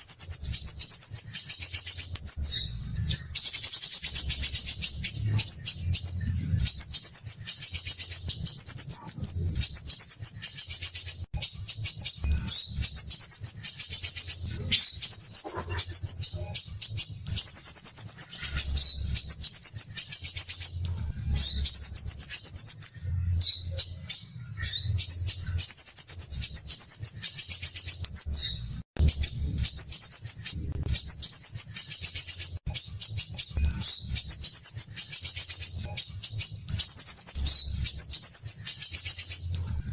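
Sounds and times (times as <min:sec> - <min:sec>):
bird singing high trills: 0:00.0 - 0:39.9
faint low rumble: 0:28.3 - 0:31.4.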